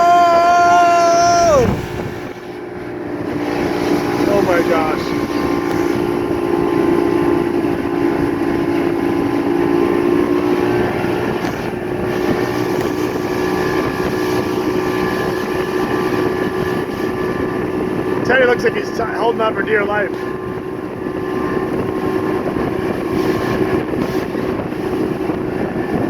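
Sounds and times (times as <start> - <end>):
wind rushing: 0.0 - 18.3
motorboat engine running: 0.0 - 26.0
water rushing past: 0.0 - 26.0.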